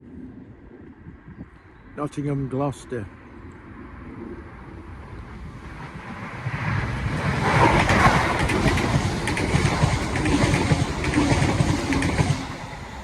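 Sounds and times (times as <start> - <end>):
passenger train passing: 4.5 - 13.0
wheel clatter over track: 6.8 - 13.0.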